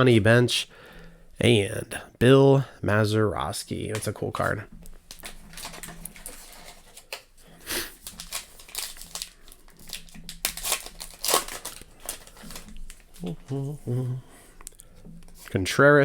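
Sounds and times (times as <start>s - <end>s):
wrapper tearing and crinkling: 5.1s - 13.3s.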